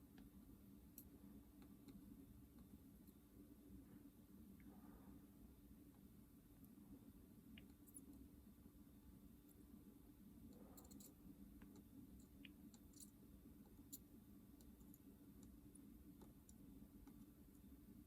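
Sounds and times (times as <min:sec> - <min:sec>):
faint low hum: 0:00.0 - 0:18.0
small ticks and clicks: 0:00.9 - 0:03.2, 0:07.5 - 0:08.3, 0:10.4 - 0:17.8.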